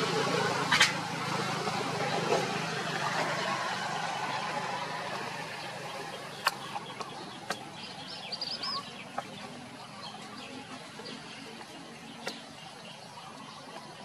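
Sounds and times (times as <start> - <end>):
birds chirping: 1.4 - 14.0.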